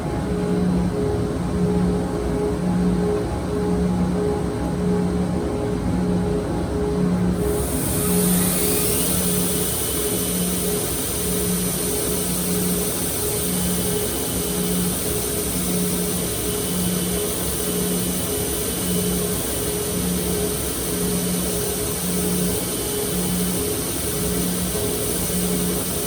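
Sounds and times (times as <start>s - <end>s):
grinder running: 7.4s - 15.3s.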